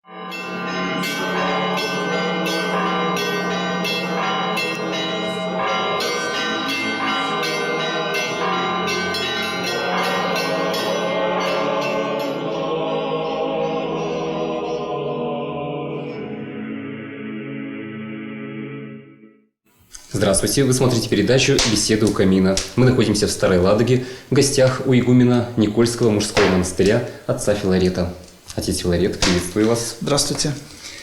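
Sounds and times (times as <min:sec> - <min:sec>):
church bells pealing: 0:00.0 - 0:14.8.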